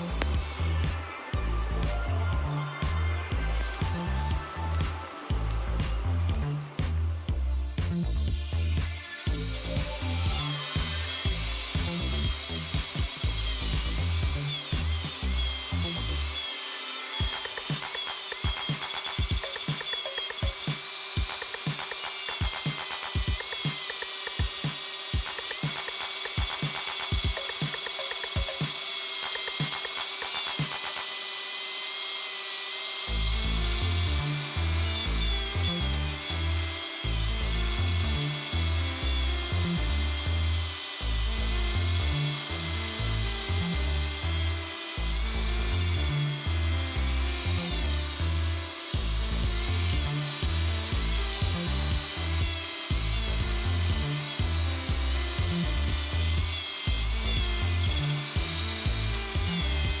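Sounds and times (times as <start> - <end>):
disc grinder grinding metal: 0.0 - 7.3, 8.2 - 60.0
background music with bass beat: 0.0 - 16.4, 17.2 - 31.1, 49.0 - 60.0.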